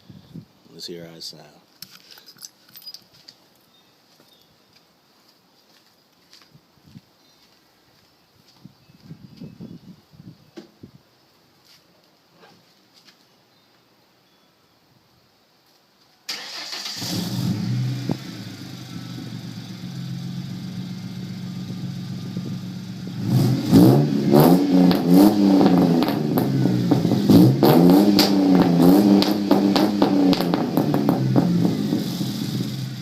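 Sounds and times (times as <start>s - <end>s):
car engine starting and idling: 16.3s - 33.0s
engine revving in blips: 17.0s - 33.0s.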